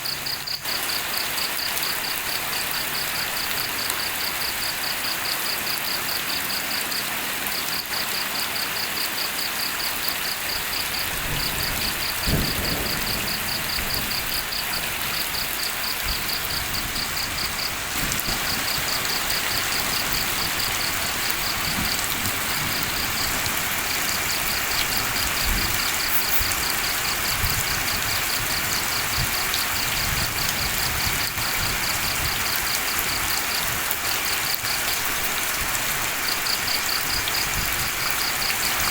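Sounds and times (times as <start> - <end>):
steady rain falling: 0.0 - 38.9
insect chirping high and fast: 9.4 - 30.2.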